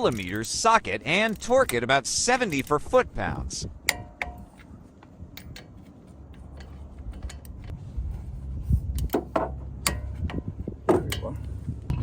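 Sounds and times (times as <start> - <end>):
low rumble: 3.7 - 12.0.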